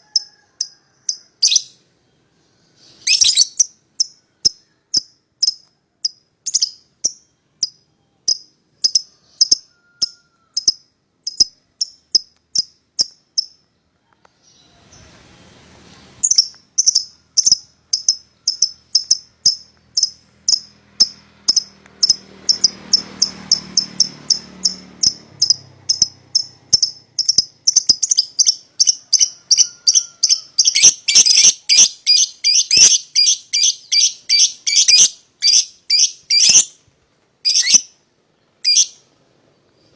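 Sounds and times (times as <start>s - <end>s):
faint low background noise: 0.3s - 21.9s, 35.1s - 39.9s
lovebirds chirping: 1.4s - 15.2s, 16.0s - 36.8s, 37.4s - 39.9s.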